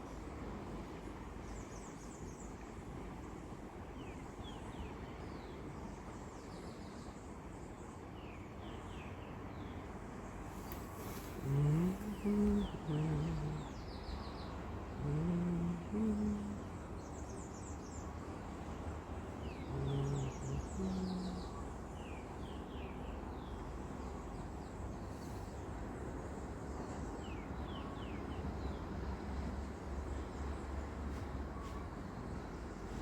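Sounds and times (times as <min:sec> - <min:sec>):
wind and sea rumble: 0:09.2 - 0:33.0
low animal calls: 0:19.6 - 0:21.6.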